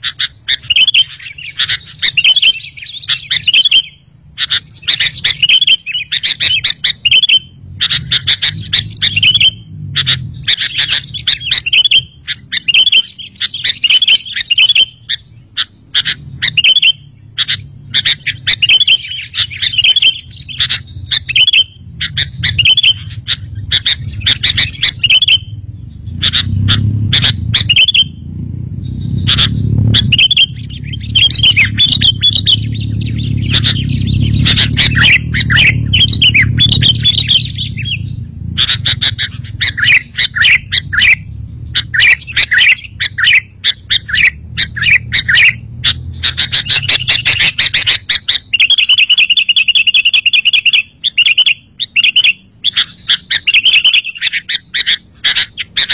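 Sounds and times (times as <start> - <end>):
bulbul bubbly chirping: 16.0 - 28.3, 28.9 - 52.3
low rumble: 20.2 - 47.8.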